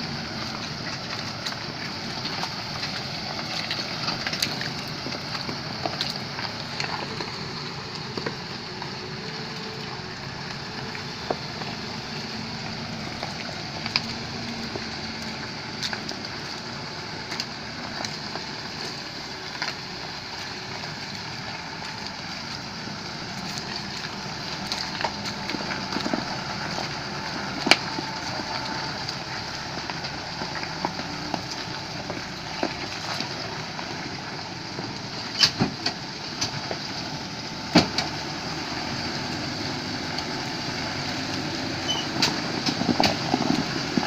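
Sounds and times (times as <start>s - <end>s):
rain ticks and taps: 0.0s - 44.0s
vehicle rushing noise in rain: 0.0s - 44.0s.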